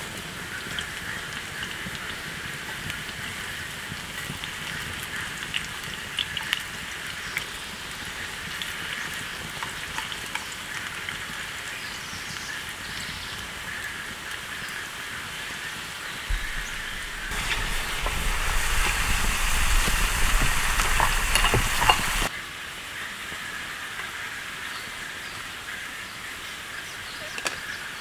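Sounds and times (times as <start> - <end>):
rain hissing: 16.3 - 22.3
raindrops ticking: 16.3 - 22.3.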